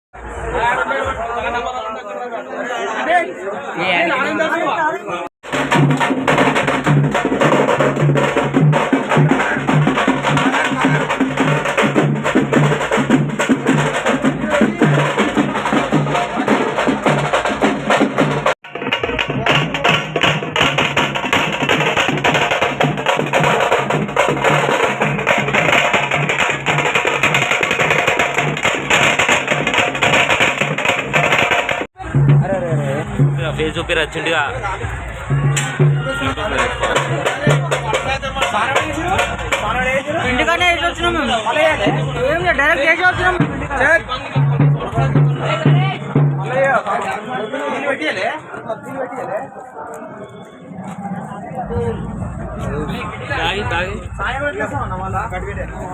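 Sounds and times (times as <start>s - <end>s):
fast loud drumming: 5.4s - 46.9s.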